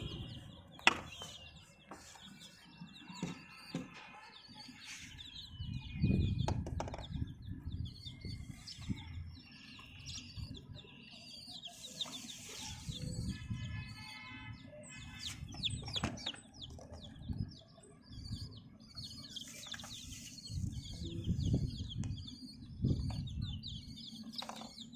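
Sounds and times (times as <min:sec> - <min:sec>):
low rumbling noise: 0:00.0 - 0:00.7
baby chicks peeping: 0:00.0 - 0:24.9.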